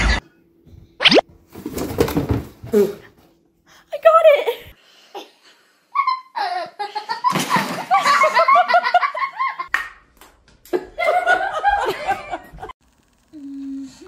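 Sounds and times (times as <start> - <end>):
people laughing hard: 6.0 - 9.7, 10.8 - 12.7.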